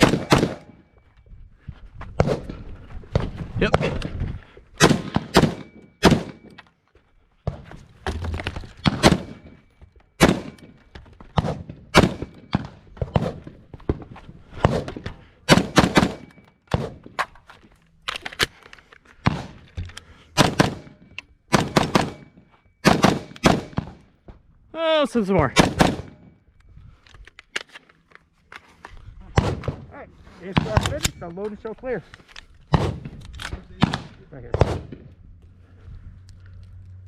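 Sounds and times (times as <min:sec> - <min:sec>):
rifle shots cracking: 0:00.0 - 0:00.8, 0:04.8 - 0:06.6, 0:08.8 - 0:09.6, 0:10.2 - 0:10.7, 0:11.4 - 0:13.4, 0:15.5 - 0:17.0, 0:20.4 - 0:24.0, 0:25.6 - 0:26.3, 0:32.7 - 0:35.0.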